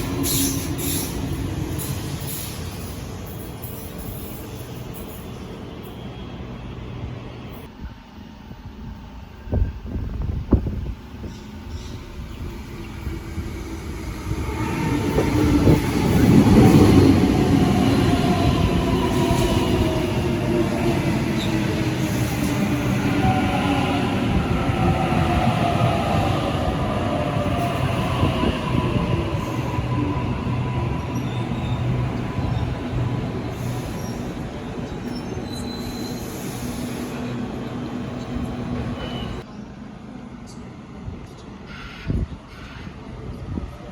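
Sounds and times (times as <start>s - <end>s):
high-pitched train whine: 0.0s - 43.6s
electric train rumbling past: 0.0s - 43.9s
high wheel squeal: 28.9s - 37.5s.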